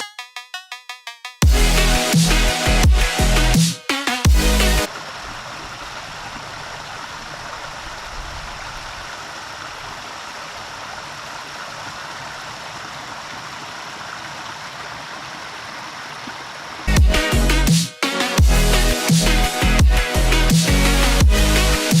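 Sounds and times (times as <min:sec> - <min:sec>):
electronic dance music: 0:00.0 - 0:04.9, 0:16.9 - 0:22.0
waterfall rushing: 0:04.3 - 0:21.9.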